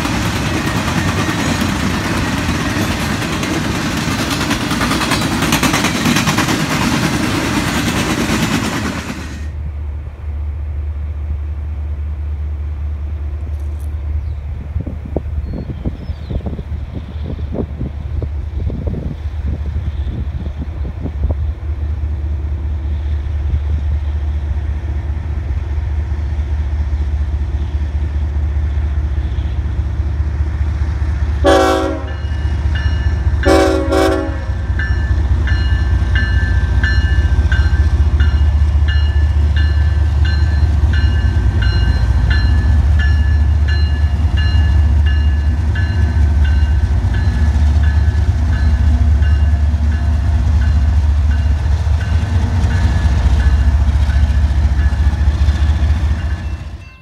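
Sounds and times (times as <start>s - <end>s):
locomotive low rumble: 0.0s - 57.0s
diesel locomotive horn blasts: 31.4s - 34.8s
locomotive bell ringing: 32.0s - 33.8s, 34.6s - 57.0s.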